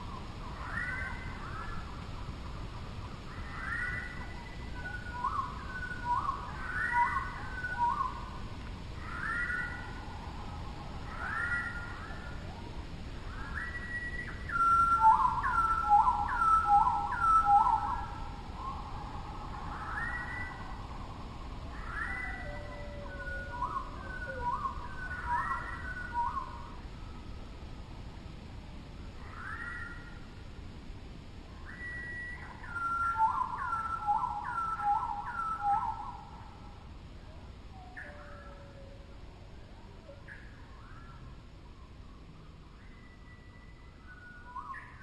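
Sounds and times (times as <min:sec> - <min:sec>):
birds whistling calls: 0:00.1 - 0:02.0, 0:03.1 - 0:08.3, 0:09.0 - 0:10.1, 0:11.1 - 0:12.5, 0:13.3 - 0:20.8, 0:21.7 - 0:26.8, 0:29.2 - 0:30.2, 0:31.6 - 0:36.5, 0:37.8 - 0:38.9, 0:40.1 - 0:45.0.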